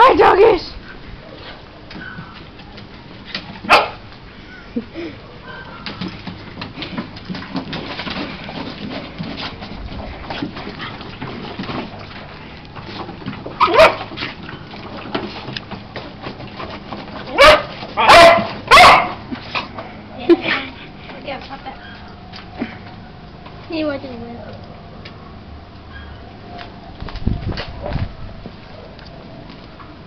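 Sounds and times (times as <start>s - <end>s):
dog barking: 3.7s - 4.0s, 13.6s - 14.1s, 17.3s - 19.2s.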